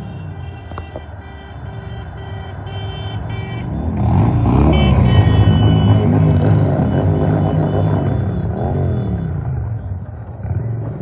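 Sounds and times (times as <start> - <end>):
vehicle horn honking: 0.0 - 9.9
loud engine revving: 1.6 - 9.7.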